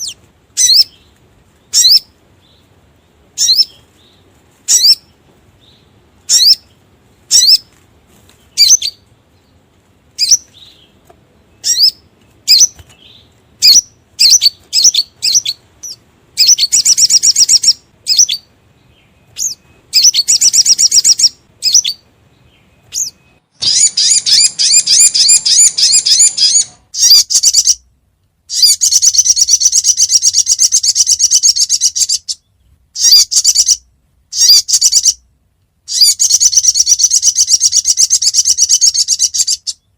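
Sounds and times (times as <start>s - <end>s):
rapid high-pitched bird trills: 0.0s - 2.7s, 3.4s - 7.7s, 8.5s - 9.5s, 10.2s - 11.0s, 11.6s - 27.8s, 28.5s - 35.2s, 35.9s - 39.9s.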